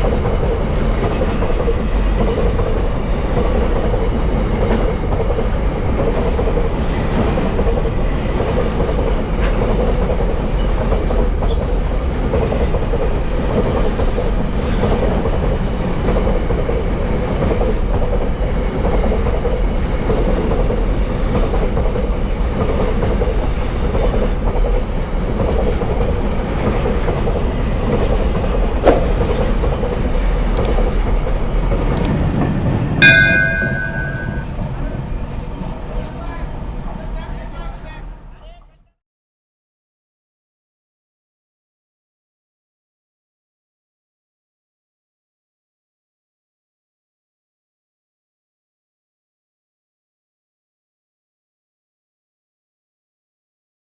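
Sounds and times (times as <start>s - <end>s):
train wagons rumbling past: 0.0s - 38.7s
wheels clattering over rail joints: 17.4s - 34.5s.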